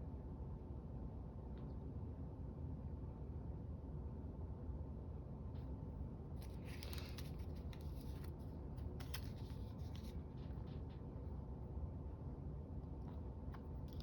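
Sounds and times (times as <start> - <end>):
low steady hum: 0.0 - 14.0
paper rustling and crinkling: 6.3 - 11.1, 13.6 - 14.0.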